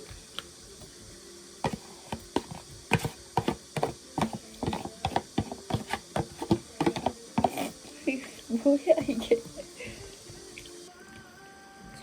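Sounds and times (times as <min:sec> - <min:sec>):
ingredients being stirred: 0:00.0 - 0:11.2
utensil tapping against pot: 0:01.6 - 0:07.8.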